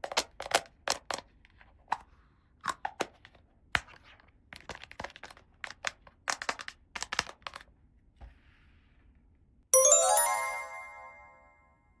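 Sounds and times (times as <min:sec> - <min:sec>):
bright chime jingle: 0:09.8 - 0:11.8.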